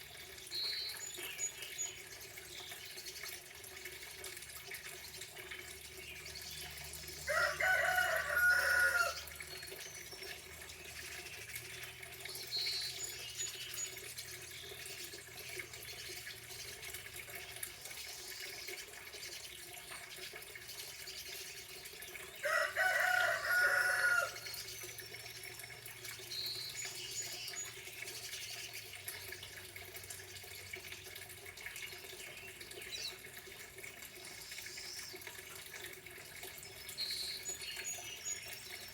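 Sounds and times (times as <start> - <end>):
small birds chirping: 0.0 - 3.4, 8.6 - 22.4, 24.3 - 29.5, 34.3 - 38.9
running water: 0.0 - 38.9
rooster crowing: 7.3 - 9.3, 22.4 - 24.4.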